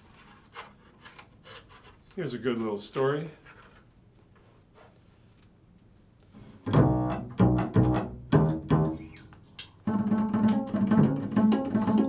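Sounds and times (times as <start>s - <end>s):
plucked low stringed instrument: 6.6s - 12.0s.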